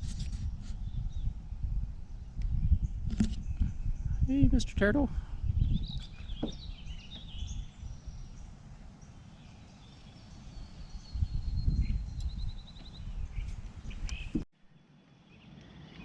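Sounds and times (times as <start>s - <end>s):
wind rumble on microphone: 0.0s - 14.5s
songbirds calling: 0.2s - 16.0s
bird trill: 5.8s - 14.4s.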